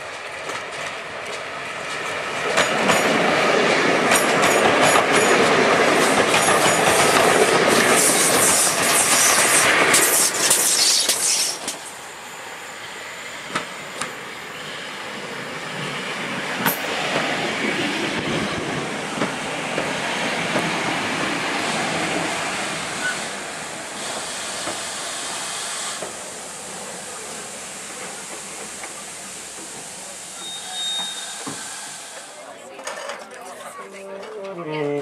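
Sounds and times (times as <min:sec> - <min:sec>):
train running noise: 0:00.0 - 0:35.0
wheels clicking over rail joints: 0:04.0 - 0:12.0, 0:32.6 - 0:34.6
light steam hiss: 0:07.2 - 0:15.9, 0:21.6 - 0:32.5.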